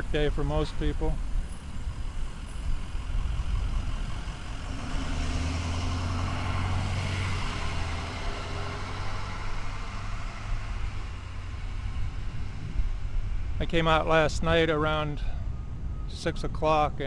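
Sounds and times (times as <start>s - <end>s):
car passing: 1.3s - 13.7s.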